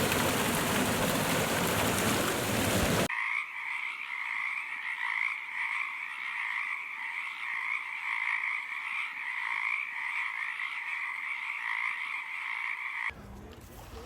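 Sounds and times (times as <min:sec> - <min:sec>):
frogs calling in chorus: 0:03.1 - 0:13.1.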